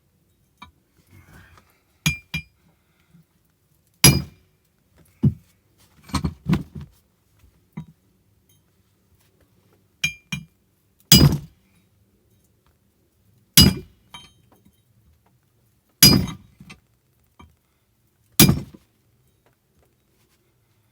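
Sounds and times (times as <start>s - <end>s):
hammer striking metal: 4.0s - 4.3s, 11.1s - 11.4s, 13.6s - 13.9s, 16.0s - 16.4s, 18.4s - 18.7s.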